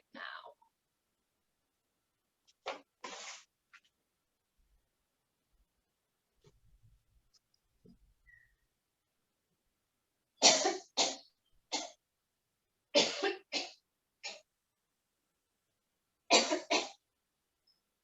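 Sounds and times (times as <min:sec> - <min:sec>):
woman coughing harshly: 0:10.4 - 0:11.2, 0:13.0 - 0:14.4, 0:16.3 - 0:17.0.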